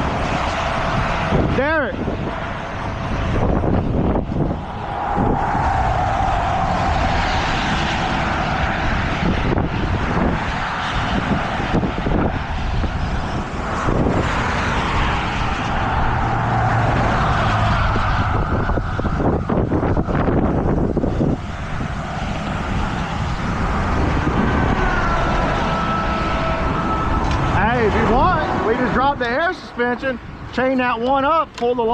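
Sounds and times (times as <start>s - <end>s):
whine: 0.0s - 31.7s
heavy truck engines running: 0.0s - 31.9s
traffic passing: 0.0s - 31.9s.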